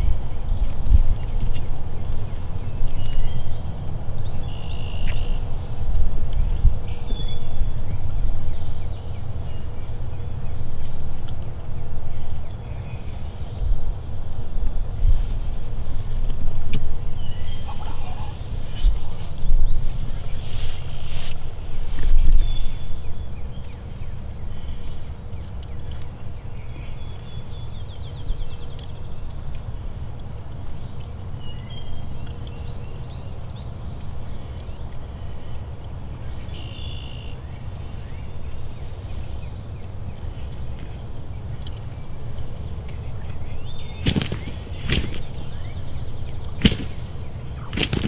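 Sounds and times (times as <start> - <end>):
wind rumbling on microphone: 0.0 - 25.2, 37.6 - 48.0
songbirds singing: 0.0 - 48.0
faint high bird calls: 17.1 - 23.7.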